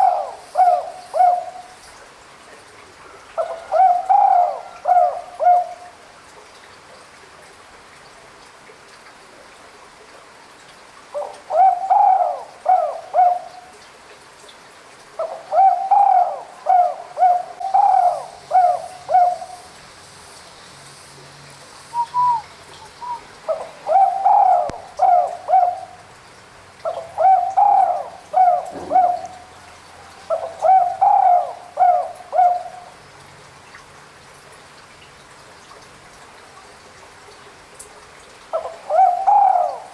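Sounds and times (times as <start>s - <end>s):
dove cooing: 0.0s - 1.7s, 3.4s - 5.8s, 11.2s - 13.6s, 15.2s - 19.7s, 22.0s - 26.0s, 26.9s - 32.9s, 38.6s - 39.9s.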